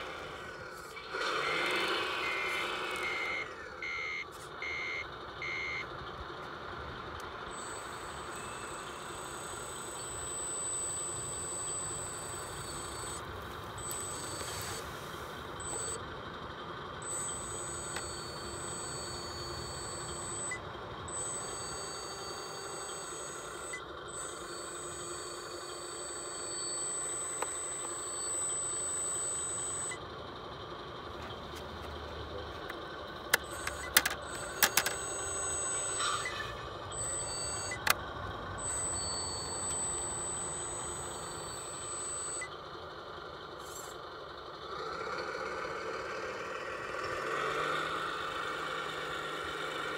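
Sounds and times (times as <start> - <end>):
model truck running: 0.0 - 49.9
sharp clicks: 17.0 - 30.0, 32.6 - 36.3, 37.0 - 42.5.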